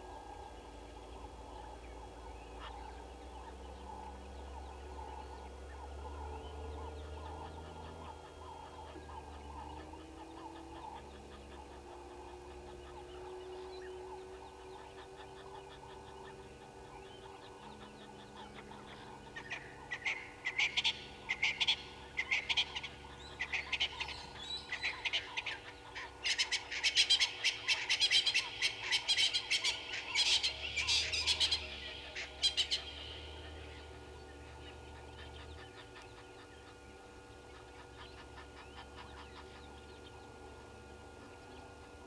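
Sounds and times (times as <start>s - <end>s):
bird harsh rapid calls: 17.5s - 33.8s.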